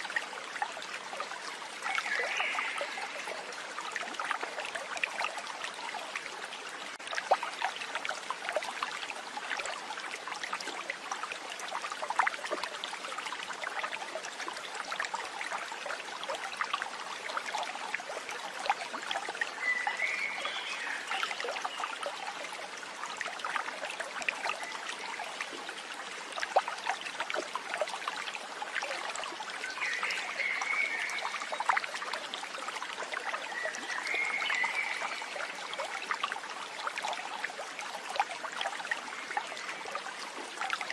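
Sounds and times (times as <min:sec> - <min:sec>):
water trickling and babbling: 0:00.0 - 0:40.9.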